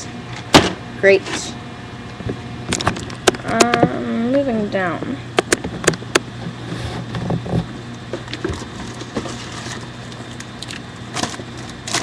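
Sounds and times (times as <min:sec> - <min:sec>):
steady low hum: 0:00.0 - 0:12.0
packaging rustling: 0:08.3 - 0:12.0.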